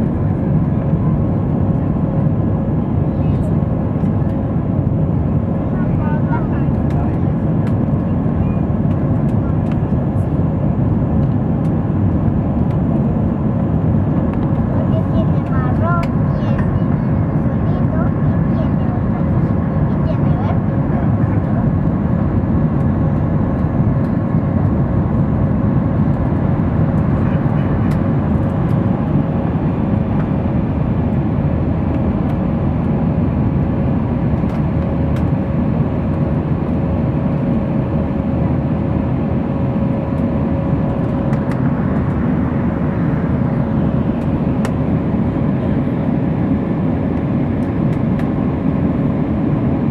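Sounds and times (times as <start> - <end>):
constant hum: 0.0 - 49.9
jet engines at high thrust: 0.0 - 49.9.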